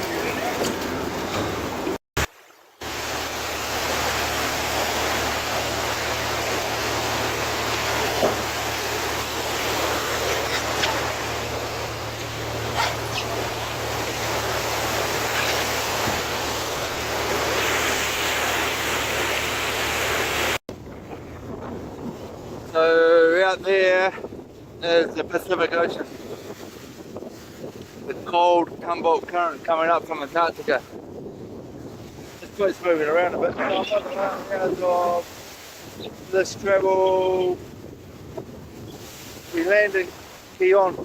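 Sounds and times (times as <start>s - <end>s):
wind and sea water rushing: 0.0s - 41.0s
boat engine drone: 2.9s - 20.6s.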